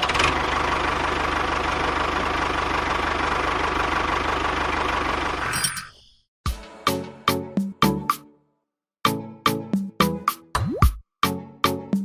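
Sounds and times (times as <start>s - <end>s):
small engine idling: 0.0s - 5.5s.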